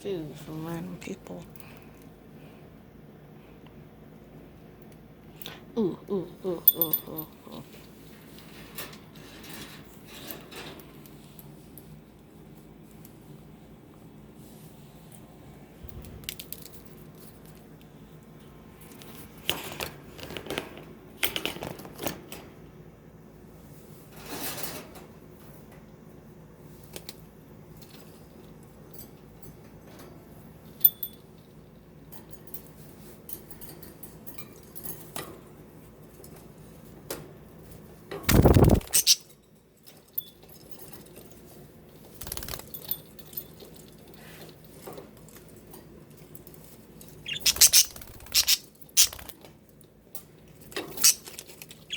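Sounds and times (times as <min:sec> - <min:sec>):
budgies chirping: 0:38.4 - 0:39.2, 0:47.2 - 0:49.3.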